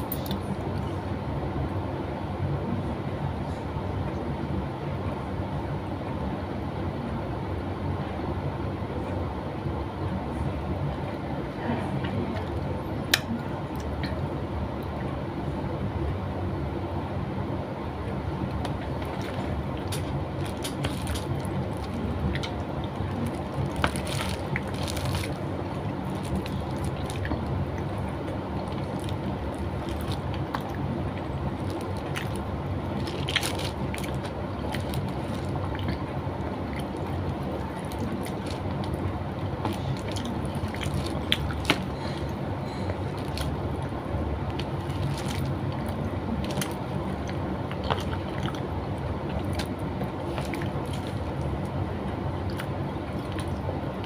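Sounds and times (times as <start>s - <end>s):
chewing and wet mouth noises: 18.0s - 54.0s.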